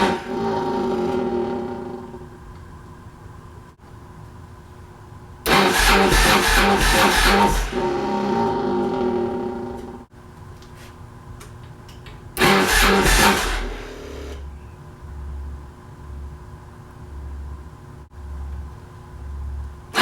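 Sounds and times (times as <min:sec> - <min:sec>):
motorcycle engine starting: 0:00.0 - 0:02.4, 0:05.4 - 0:10.1, 0:12.4 - 0:14.6.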